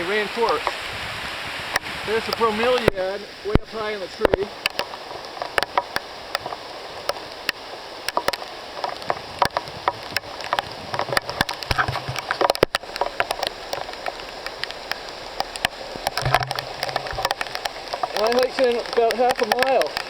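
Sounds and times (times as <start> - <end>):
drips striking leaves: 0.0 - 20.0
rain hissing: 0.0 - 20.0.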